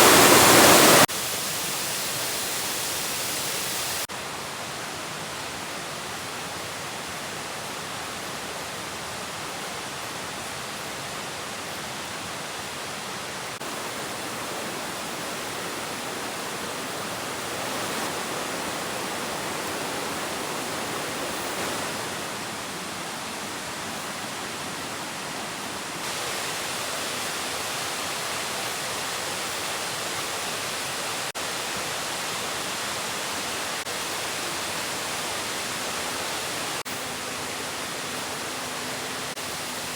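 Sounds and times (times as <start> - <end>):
waterfall rushing: 0.0 - 4.1, 13.0 - 39.9.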